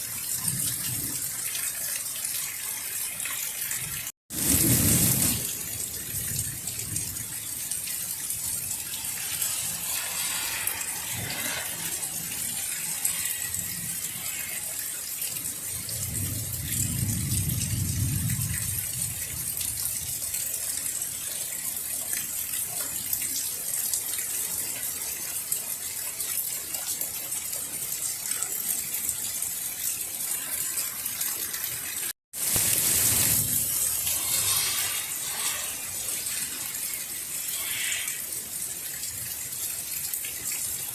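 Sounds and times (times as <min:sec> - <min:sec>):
heavy rain splashing: 0:00.0 - 0:40.9.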